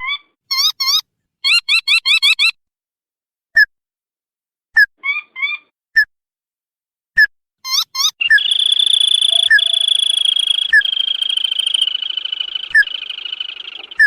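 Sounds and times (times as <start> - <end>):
crake calling: 7.7 - 14.0.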